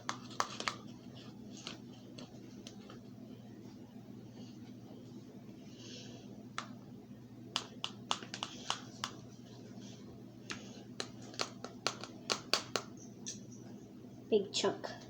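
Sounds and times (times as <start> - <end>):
spoons clicking against cups: 7.6 - 9.2, 10.5 - 13.6.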